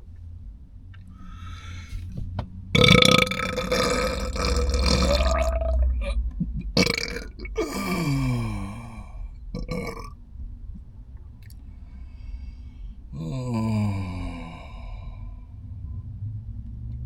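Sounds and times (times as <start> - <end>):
person burping loudly: 2.8 - 10.1.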